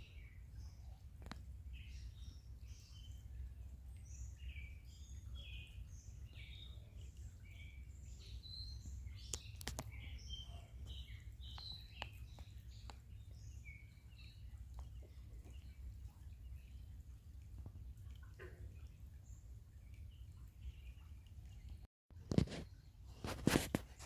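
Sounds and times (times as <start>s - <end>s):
faint birds chirping: 0.0s - 24.0s.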